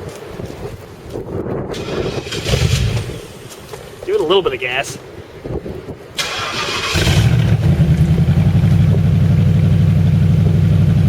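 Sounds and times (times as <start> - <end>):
car engine starting: 1.7 - 3.5, 6.2 - 11.0
car engine running steadily: 7.0 - 11.0.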